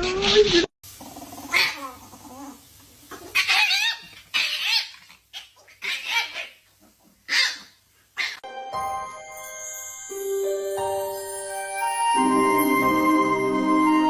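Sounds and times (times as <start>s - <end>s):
animal crying out: 1.0s - 6.6s.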